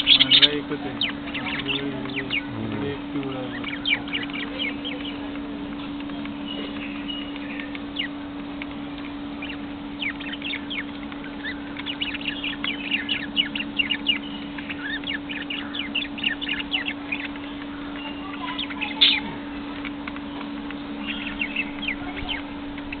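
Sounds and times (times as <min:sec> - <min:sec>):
lovebirds chirping: 0:00.0 - 0:23.0
low hum: 0:00.0 - 0:23.0
bird shriek: 0:18.2 - 0:19.3.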